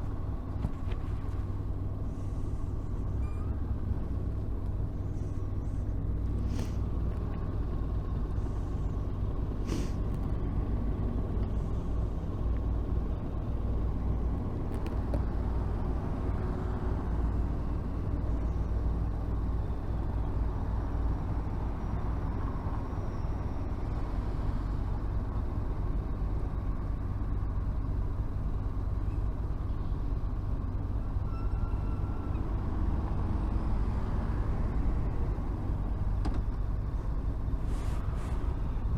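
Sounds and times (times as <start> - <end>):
city traffic: 0.0 - 38.9
short hisses: 6.4 - 6.9, 9.6 - 10.0, 37.6 - 38.5.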